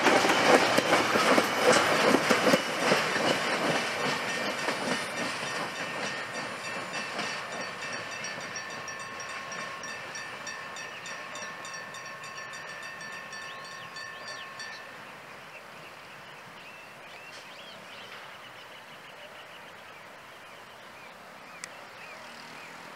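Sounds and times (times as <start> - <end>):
freight wagons rolling past: 0.0 - 19.5.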